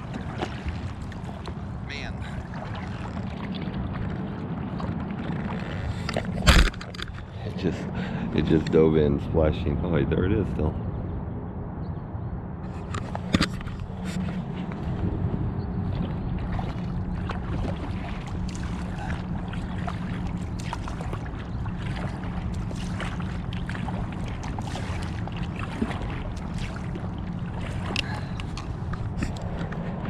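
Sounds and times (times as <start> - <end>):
water splashing and dripping: 0.0 - 7.3, 15.8 - 30.0
steady low rumble: 0.0 - 30.0.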